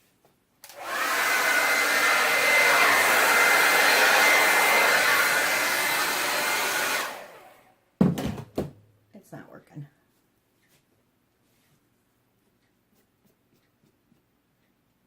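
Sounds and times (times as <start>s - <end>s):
hot-air blower running: 0.6s - 7.7s.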